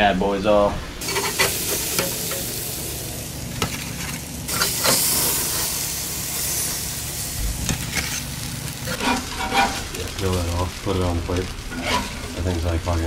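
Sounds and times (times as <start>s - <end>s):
fish sizzling on a grill: 1.0s - 13.0s.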